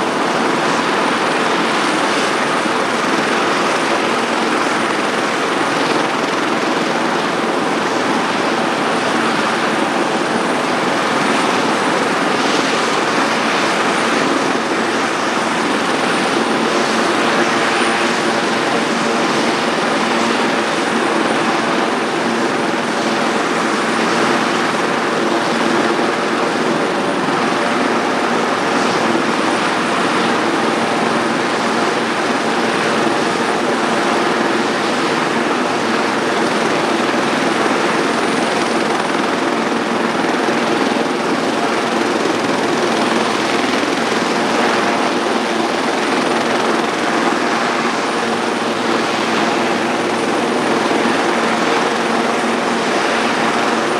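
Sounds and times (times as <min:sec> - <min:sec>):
helicopter engine whine: 0:00.0 - 0:53.9
helicopter rotor noise: 0:00.0 - 0:53.9.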